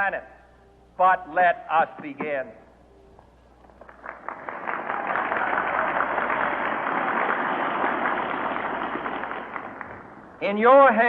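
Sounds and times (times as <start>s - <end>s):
crowd applauding: 3.6s - 10.4s.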